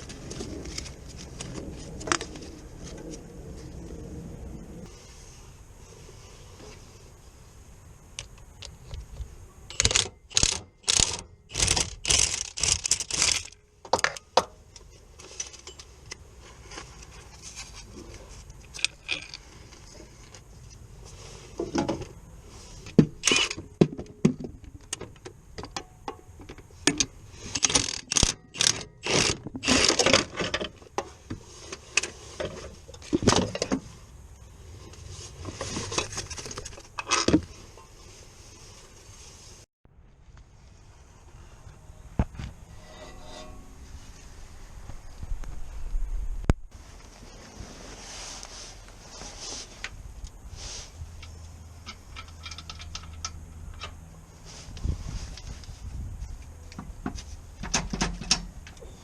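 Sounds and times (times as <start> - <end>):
tools and metal parts clinking: 9.7 - 16.2, 23.2 - 24.2, 24.9 - 31.0, 51.2 - 54.0.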